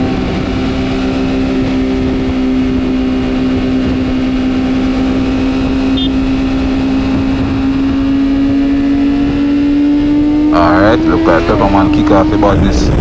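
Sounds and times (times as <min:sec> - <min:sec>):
motorcycle engine at high revs: 0:00.0 - 0:13.0
rushing noise: 0:10.6 - 0:13.0.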